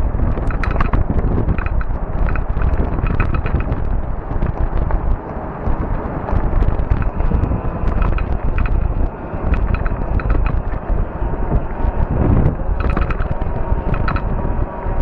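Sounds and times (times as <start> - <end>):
faint steady whine: 0.0 - 15.0
low rumble of e-bike riding: 0.0 - 15.0
wind buffeting microphone: 0.0 - 15.0
short clicks and rattles: 0.2 - 4.7, 6.8 - 10.8, 11.8 - 14.4.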